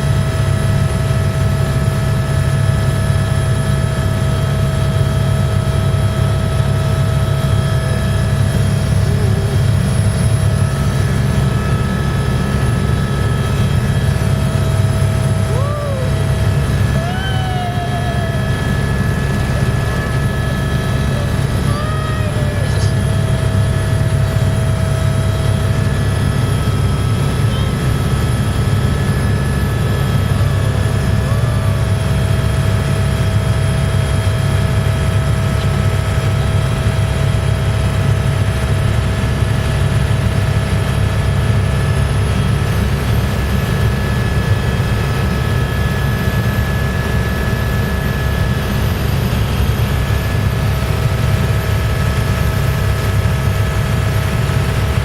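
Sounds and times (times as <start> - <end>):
helicopter rotor and engine drone: 0.0 - 55.0
high whining tones: 8.4 - 24.9.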